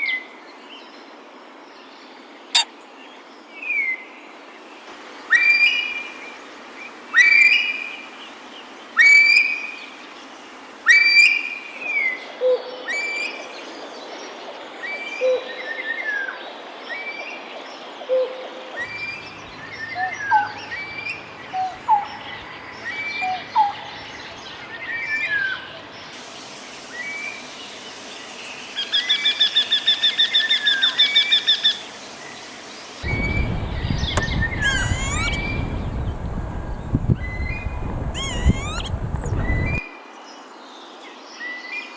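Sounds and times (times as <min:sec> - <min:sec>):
rapid bird trill: 0:26.2 - 0:33.3, 0:34.5 - 0:35.8, 0:37.6 - 0:39.8
sharp repeated bird calls: 0:26.2 - 0:33.3, 0:34.0 - 0:36.0, 0:38.1 - 0:39.8
whistled bird notes: 0:26.2 - 0:36.2, 0:37.2 - 0:39.9
noisy low sound: 0:26.2 - 0:39.8.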